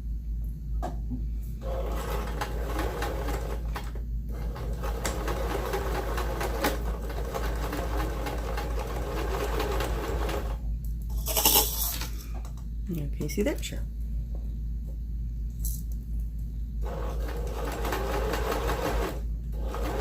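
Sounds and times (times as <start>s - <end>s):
sewing machine stitching: 1.6s - 10.6s, 16.8s - 20.0s.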